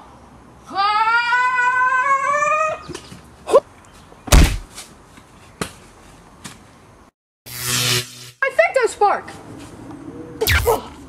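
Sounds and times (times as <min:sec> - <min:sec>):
loud thud: 0:04.3 - 0:04.7.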